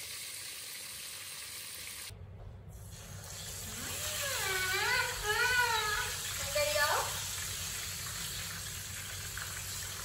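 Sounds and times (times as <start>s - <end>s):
chicken deep-frying in oil: 2.9s - 10.0s.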